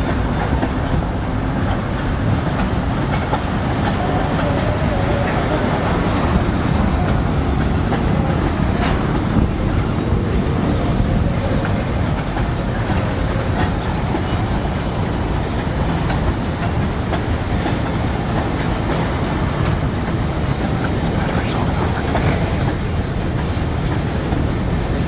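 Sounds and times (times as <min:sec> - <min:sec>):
train wheels rumbling on rails: 0:00.0 - 0:25.0
faint high wheel squeals: 0:14.3 - 0:16.0.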